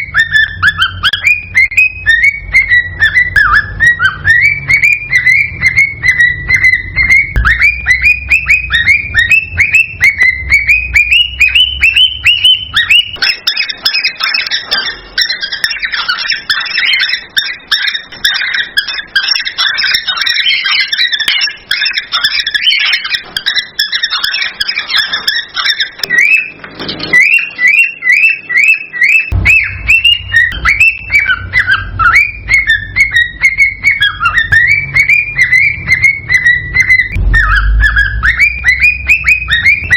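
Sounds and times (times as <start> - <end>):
cockatiel whistles and chirps: 0.0 - 39.9
low rumble: 29.3 - 30.8, 35.8 - 39.9.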